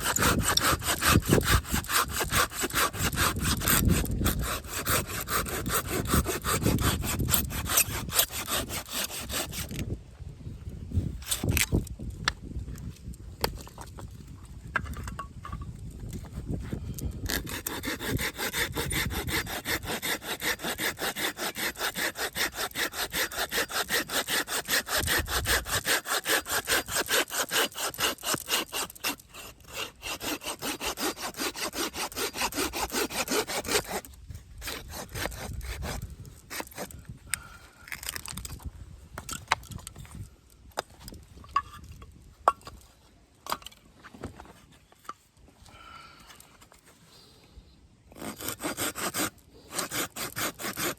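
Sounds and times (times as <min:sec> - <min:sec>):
hand saw cutting wood: 0:00.0 - 0:09.9, 0:11.2 - 0:11.8, 0:17.1 - 0:38.5, 0:48.1 - 0:50.9.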